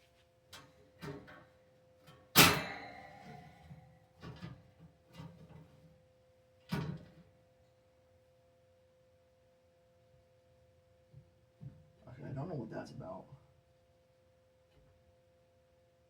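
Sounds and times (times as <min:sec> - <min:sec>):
loud metal clank: 0:02.4 - 0:03.5.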